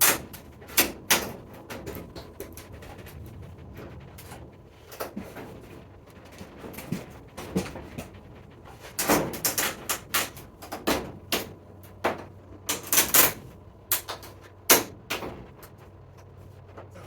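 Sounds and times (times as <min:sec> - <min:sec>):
plastic parts clicking and knocking: 0:09.0 - 0:15.8.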